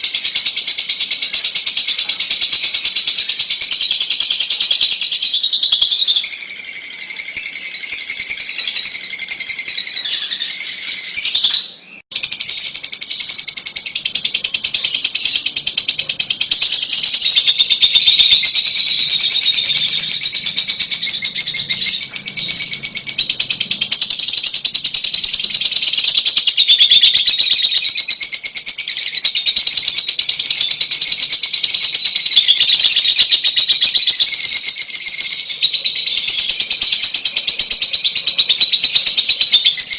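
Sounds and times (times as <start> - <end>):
lovebird chattering twitters and trills: 0.0 - 39.9.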